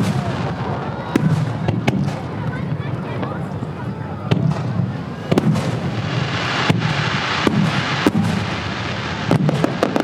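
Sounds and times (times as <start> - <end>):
firework shells booming: 0.0 - 10.0
fireworks crackling hiss: 0.0 - 10.0.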